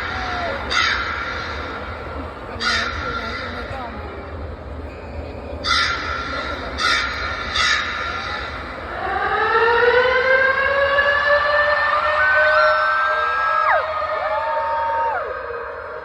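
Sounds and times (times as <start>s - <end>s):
crow-like caws: 0.0s - 3.7s, 5.6s - 8.7s.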